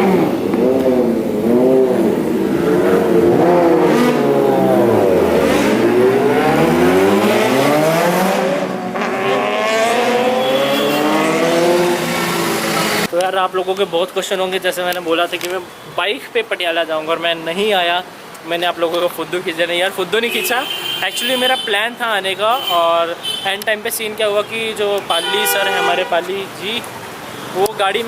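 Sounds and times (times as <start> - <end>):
motorcycle engine revving: 0.0 - 13.1.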